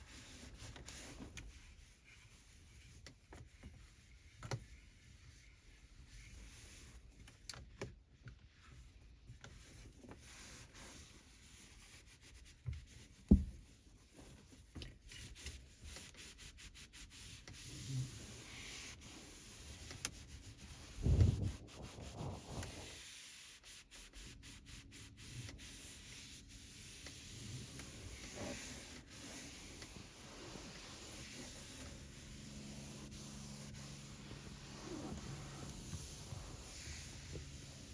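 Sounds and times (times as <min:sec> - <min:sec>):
cloth wiping surfaces: 0:00.0 - 0:07.2, 0:08.5 - 0:37.9
low thudding: 0:20.9 - 0:22.9.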